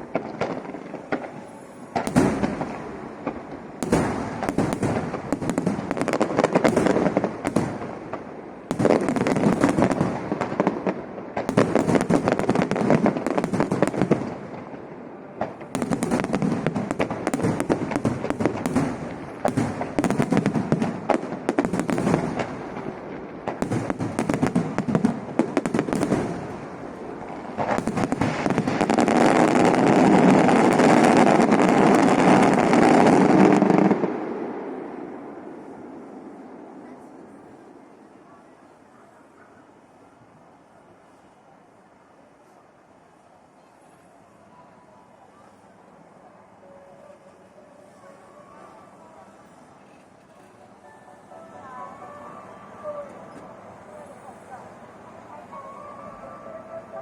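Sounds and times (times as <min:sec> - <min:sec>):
fireworks crackling bangs: 0:00.0 - 0:37.9.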